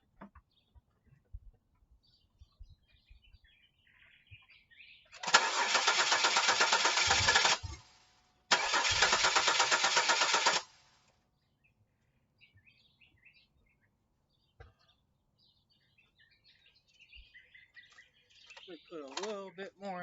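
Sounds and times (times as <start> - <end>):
faint bird chirps: 2.0 - 5.2, 11.4 - 19.2
car starter cranking: 5.2 - 10.7.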